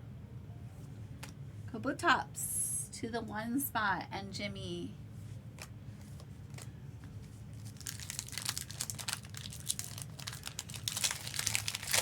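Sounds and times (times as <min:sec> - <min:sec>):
foil wrapper crinkling and tearing: 0:07.5 - 0:12.0.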